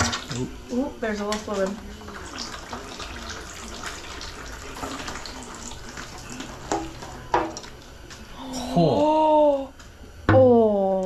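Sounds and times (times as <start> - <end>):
fluid pouring and splashing: 1.5 - 7.9.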